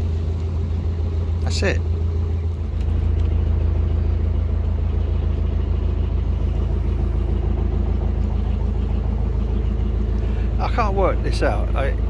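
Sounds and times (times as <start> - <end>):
diesel boat engine throbbing: 0.0 - 12.0.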